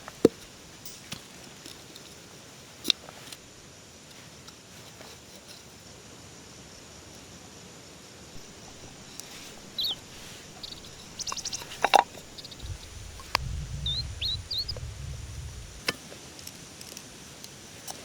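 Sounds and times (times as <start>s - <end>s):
small bird chirping: 8.4s - 15.9s
low rumble: 12.2s - 15.8s.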